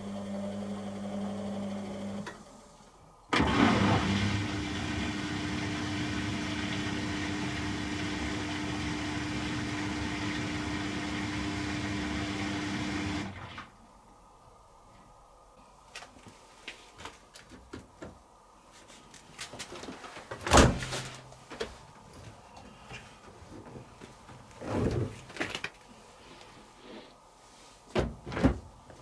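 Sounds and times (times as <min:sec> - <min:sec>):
washing machine water rush: 0:03.3 - 0:13.6
washing machine low hum: 0:03.3 - 0:13.8.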